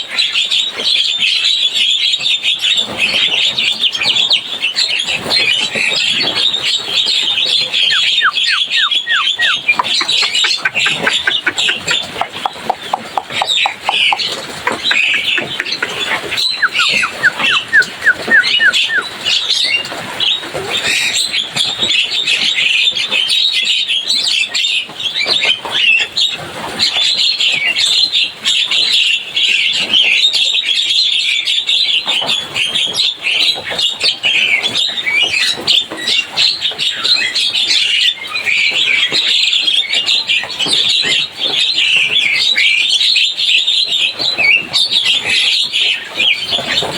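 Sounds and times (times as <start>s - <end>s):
myna chattering: 7.6s - 19.1s.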